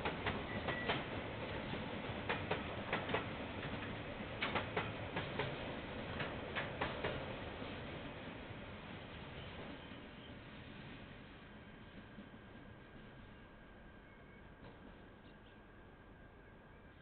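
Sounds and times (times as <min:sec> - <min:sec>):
train wheels clicking over rail joints: 0:00.0 - 0:07.3
low train rumble: 0:00.0 - 0:17.0.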